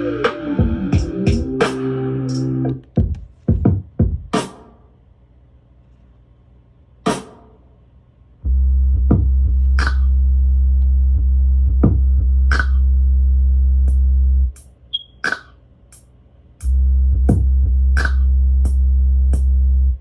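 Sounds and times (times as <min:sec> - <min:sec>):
electronic hip-hop beat: 0:00.0 - 0:04.6, 0:08.5 - 0:13.1, 0:13.8 - 0:16.0, 0:16.6 - 0:20.0
deep sustained bass note: 0:08.5 - 0:14.5, 0:16.7 - 0:20.0.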